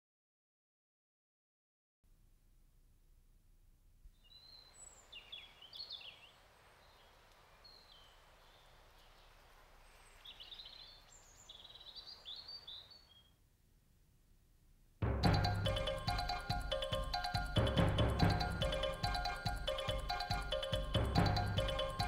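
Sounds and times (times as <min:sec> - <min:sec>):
soft outdoor hiss: 0:02.1 - 0:22.0.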